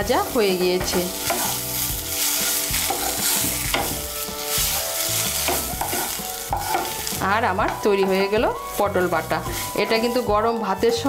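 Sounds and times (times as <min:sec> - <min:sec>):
paste sizzling in pan: 0:00.0 - 0:11.0
spatula scraping pan: 0:00.2 - 0:10.4.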